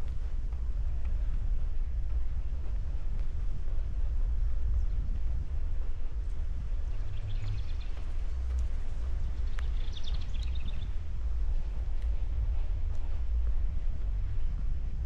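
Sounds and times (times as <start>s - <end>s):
wind buffeting microphone: 0.0s - 15.0s
songbird singing: 6.6s - 12.2s.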